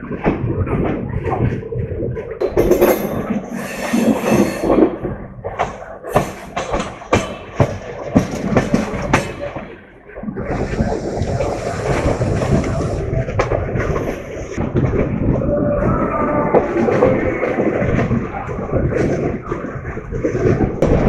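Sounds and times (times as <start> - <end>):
train running noise: 2.2 - 20.9
train wheels clacking over rail joints: 2.4 - 10.0.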